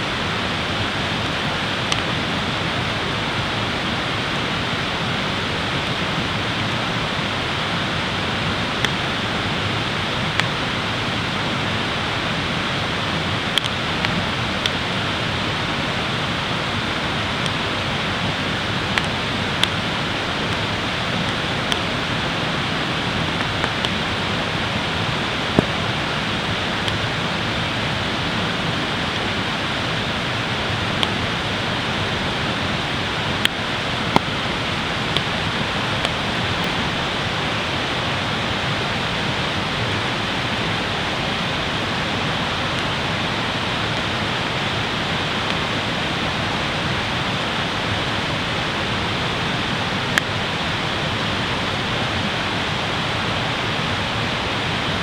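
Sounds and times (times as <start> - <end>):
running water rushing: 0.0 - 55.0
campfire popping and crackling: 11.9 - 14.9, 16.4 - 37.2.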